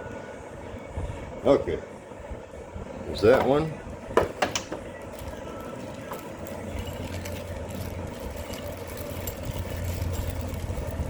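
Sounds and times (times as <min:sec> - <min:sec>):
low engine-like hum: 0:04.8 - 0:11.0.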